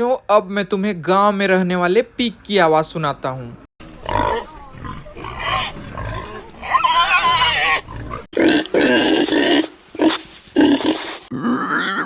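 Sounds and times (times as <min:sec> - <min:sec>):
pig grunting: 0:04.0 - 0:12.0
pig squealing: 0:04.0 - 0:12.0.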